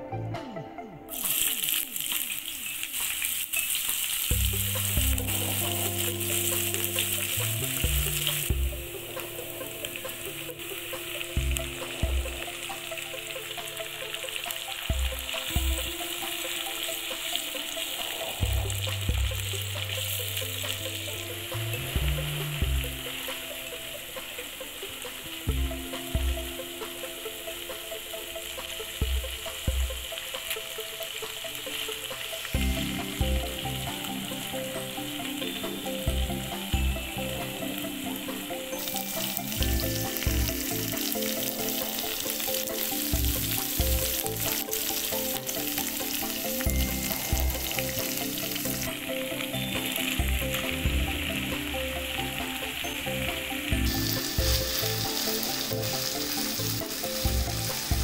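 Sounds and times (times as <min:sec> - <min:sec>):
soft background music with beat: 0:00.0 - 0:58.0
paste sizzling in oil: 0:01.1 - 0:21.8, 0:38.7 - 0:50.8, 0:52.8 - 0:58.0.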